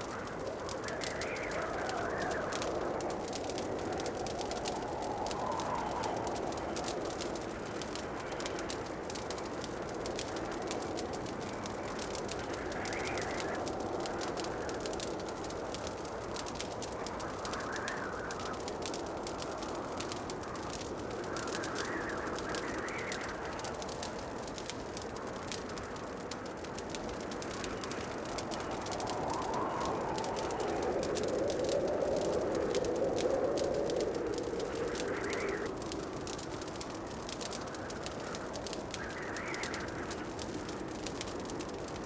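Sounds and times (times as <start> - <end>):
wood fire crackling: 0.0 - 42.0.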